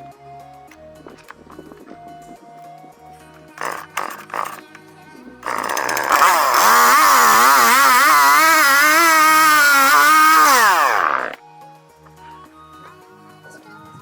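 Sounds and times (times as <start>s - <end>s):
chainsaw cutting wood: 1.0s - 2.1s, 3.5s - 11.4s.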